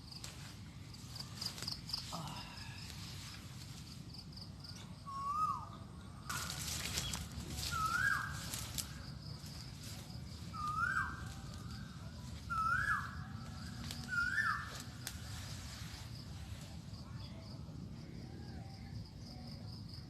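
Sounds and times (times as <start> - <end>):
bird calling: 5.1 - 9.0, 10.5 - 11.5, 12.5 - 13.2, 13.9 - 14.9.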